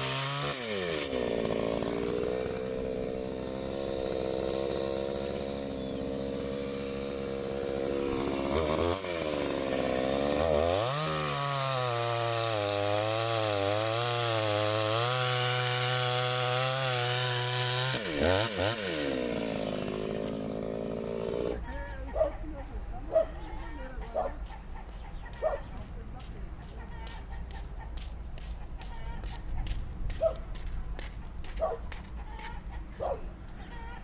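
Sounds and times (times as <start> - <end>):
chainsaw engine revving: 0.0 - 21.6.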